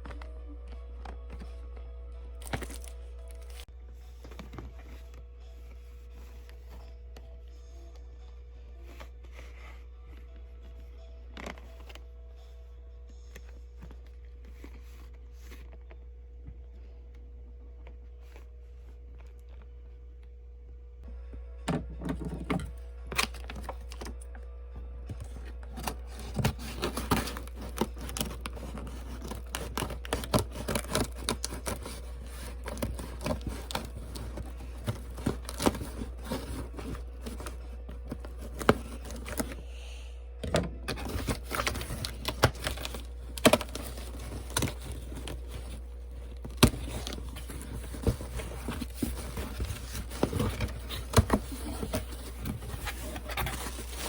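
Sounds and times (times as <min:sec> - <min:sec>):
steady low hum: 0:00.0 - 0:54.0
packaging crinkling and tearing: 0:02.4 - 0:03.7, 0:23.1 - 0:24.2, 0:25.1 - 0:39.6, 0:40.9 - 0:54.0.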